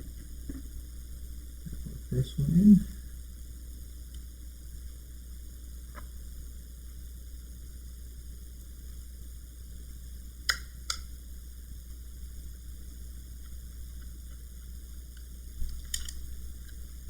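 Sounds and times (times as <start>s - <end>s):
low hum: 0.0s - 3.9s
screwdriver clicks: 15.2s - 16.8s.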